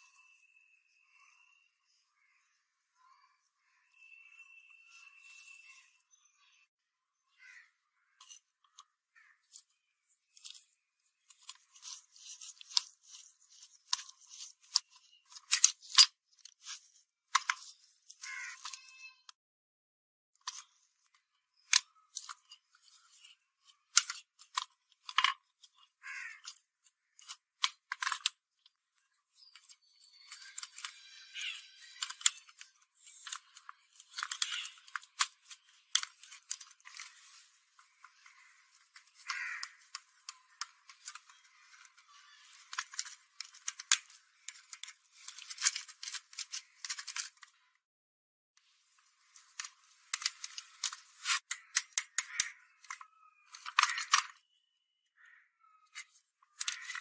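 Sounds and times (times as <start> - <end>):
clicks and taps on metal parts: 49.6 - 54.4.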